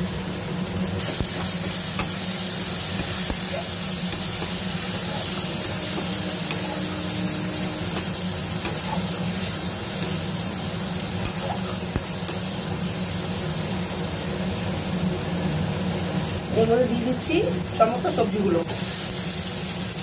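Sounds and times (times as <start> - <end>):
vegetables sizzling in oil: 0.0 - 20.0
spatula stirring in pan: 1.0 - 13.2.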